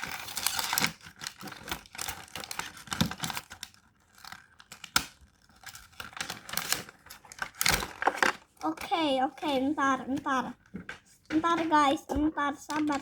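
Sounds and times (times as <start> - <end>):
package wrapping tearing and crinkling: 0.0 - 8.8.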